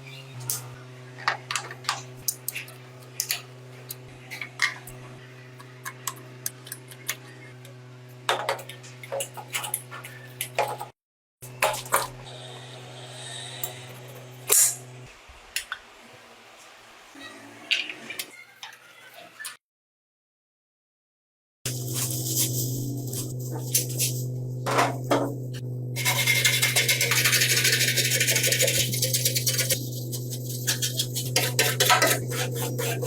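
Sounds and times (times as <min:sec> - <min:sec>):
steady hum: 0:21.7 - 0:33.0.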